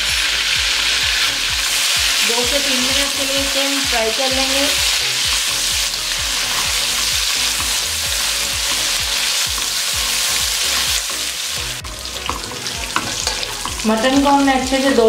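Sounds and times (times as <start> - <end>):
meat sizzling in hot oil: 0.0 - 15.0
spatula stirring: 4.7 - 15.0.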